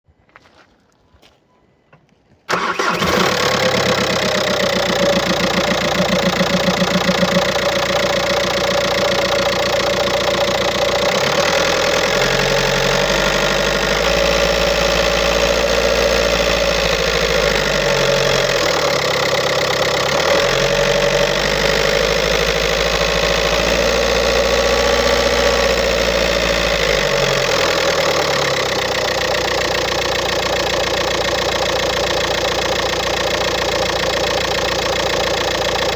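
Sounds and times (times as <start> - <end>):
diesel engine starting: 2.5 - 35.9
engine idling with clattering rattle: 2.5 - 35.9.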